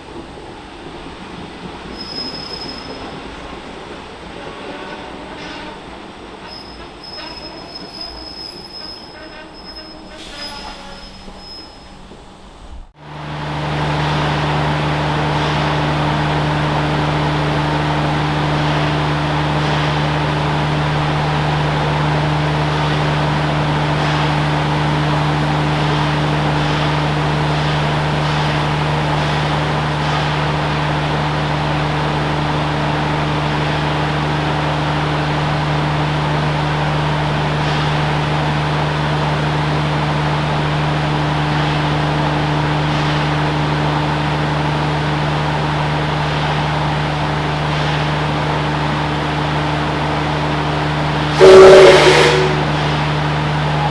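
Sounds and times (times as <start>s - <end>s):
train running with low hum: 0.0s - 53.9s
train wheels squealing: 1.9s - 3.4s, 6.4s - 12.6s.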